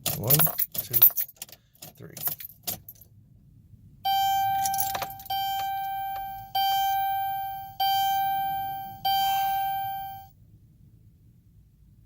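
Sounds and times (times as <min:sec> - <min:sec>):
dashboard warning chime: 0:04.1 - 0:10.3
ignition key clicks: 0:04.4 - 0:06.5.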